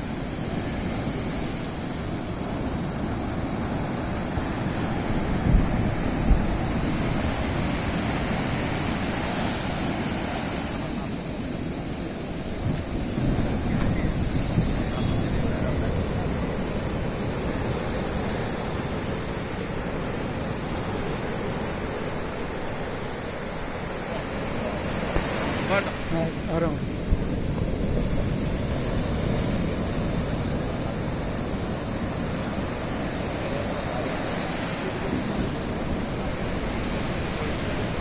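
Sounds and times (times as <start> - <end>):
waves breaking on beach: 0.0 - 38.0
wind buffeting microphone: 0.4 - 22.8, 23.4 - 34.1.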